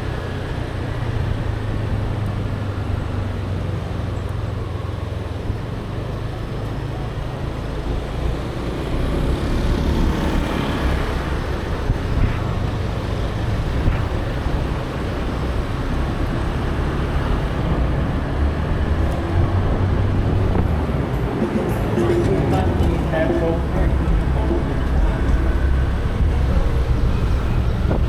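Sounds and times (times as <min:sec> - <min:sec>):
road traffic: 0:00.0 - 0:28.0
vehicle passing close by: 0:06.5 - 0:28.0.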